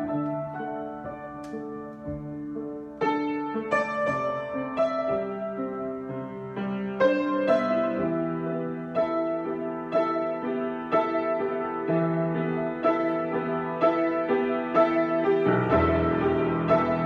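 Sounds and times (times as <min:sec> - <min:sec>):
deep piano bass notes: 0:00.0 - 0:17.0
solo piano improvisation: 0:00.0 - 0:17.0.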